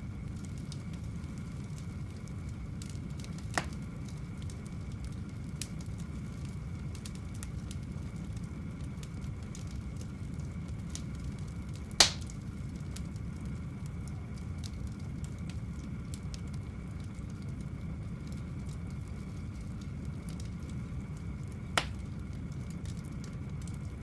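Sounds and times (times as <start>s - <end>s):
wood fire rumbling and crackling: 0.0s - 24.0s
loud sharp pop of fire: 3.4s - 3.9s, 11.8s - 12.5s, 21.7s - 22.2s.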